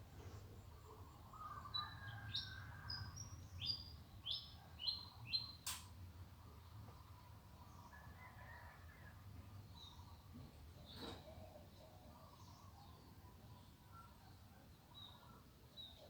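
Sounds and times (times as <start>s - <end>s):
sharp click: 5.6s - 5.9s.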